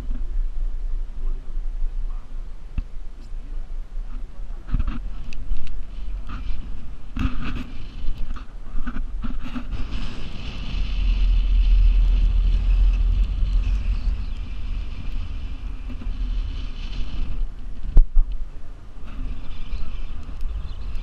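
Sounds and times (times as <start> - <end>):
strong wind gusting: 0.0 - 21.0
wind buffeting microphone: 0.0 - 21.0.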